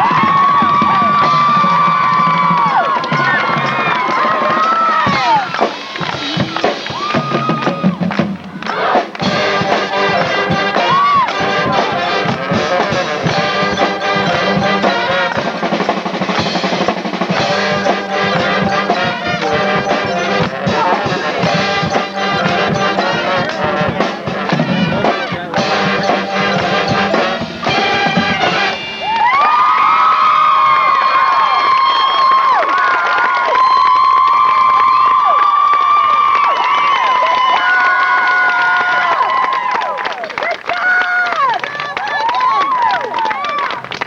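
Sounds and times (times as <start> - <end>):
marching drums: 0.0 - 29.7
brass instruments: 0.0 - 31.6.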